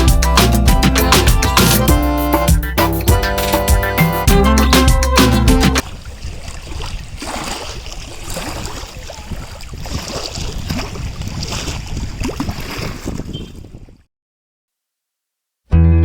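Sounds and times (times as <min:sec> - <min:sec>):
wind buffeting microphone: 0:05.8 - 0:14.1.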